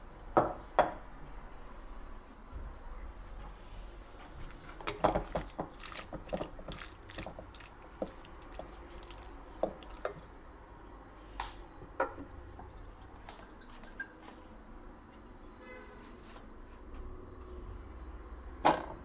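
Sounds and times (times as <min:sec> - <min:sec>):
squishy food handling: 0:04.0 - 0:13.5.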